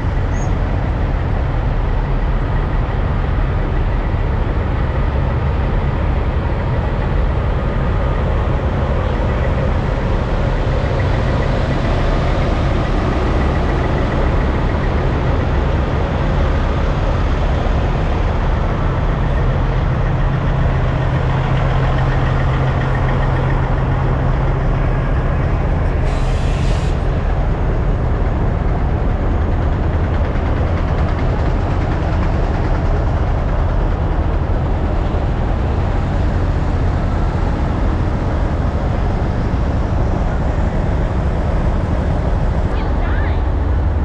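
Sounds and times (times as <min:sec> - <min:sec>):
diesel truck engines idling: 0:00.0 - 0:44.0
short air hiss: 0:26.1 - 0:27.0.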